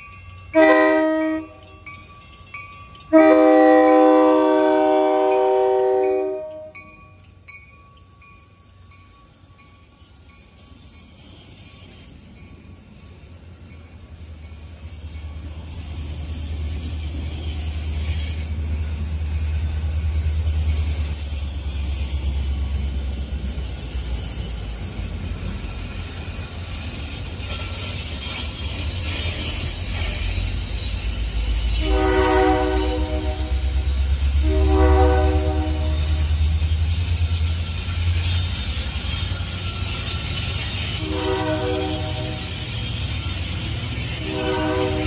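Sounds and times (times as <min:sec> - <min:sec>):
train cars rolling past: 0:00.0 - 0:45.0
multi-note train horn: 0:00.5 - 0:01.7, 0:03.1 - 0:06.8, 0:31.7 - 0:36.4, 0:40.9 - 0:42.6, 0:44.1 - 0:45.0.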